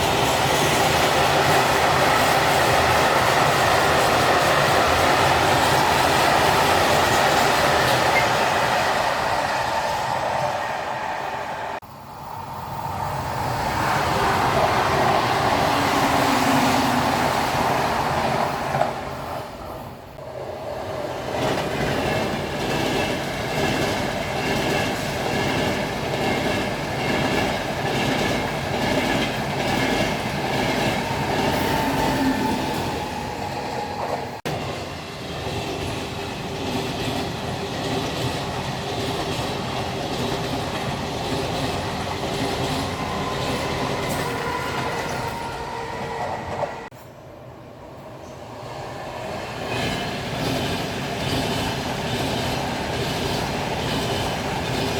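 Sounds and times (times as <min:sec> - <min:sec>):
train wheels clattering on rails: 0:00.0 - 0:10.6, 0:21.0 - 0:47.2, 0:49.6 - 0:54.9.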